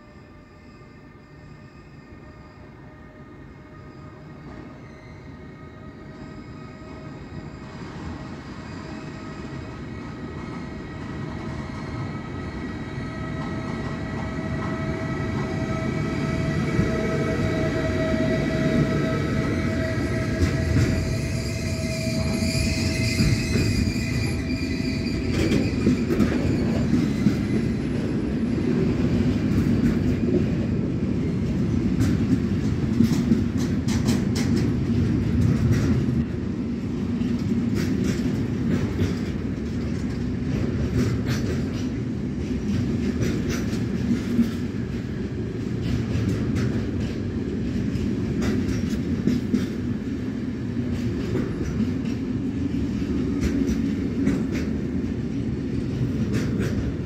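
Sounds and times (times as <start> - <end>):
high wheel squeal: 0.1 - 7.8, 15.5 - 28.6.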